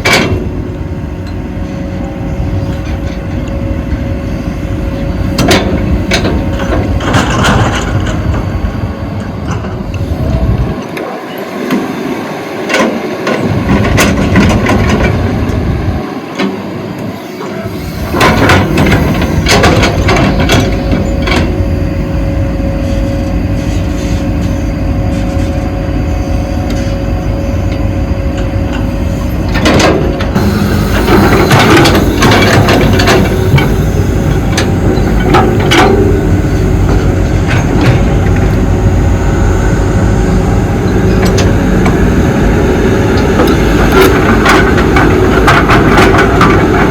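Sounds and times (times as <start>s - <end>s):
excavator diesel engine under load: 0.0s - 46.9s
sharp knocks and clatter: 18.2s - 21.5s, 29.5s - 33.8s.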